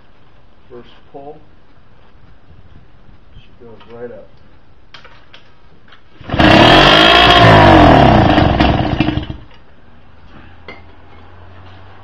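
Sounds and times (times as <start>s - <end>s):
outboard engine revving: 6.2s - 9.4s.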